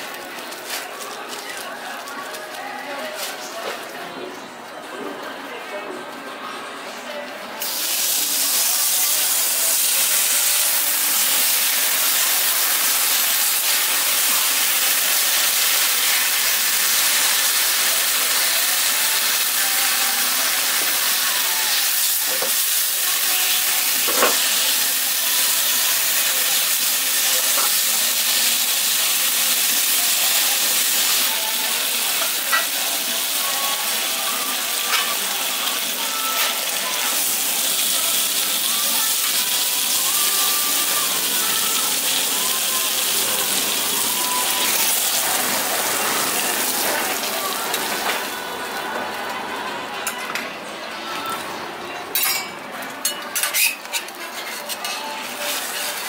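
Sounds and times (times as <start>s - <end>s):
bacon and egg sizzling: 7.6s - 48.2s.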